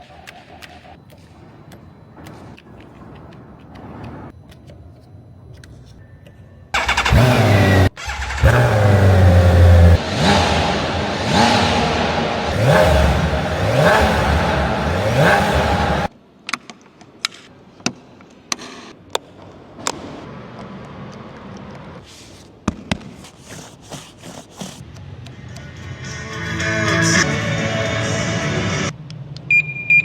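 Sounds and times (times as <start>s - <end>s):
motorcycle engine revving: 6.8s - 16.1s.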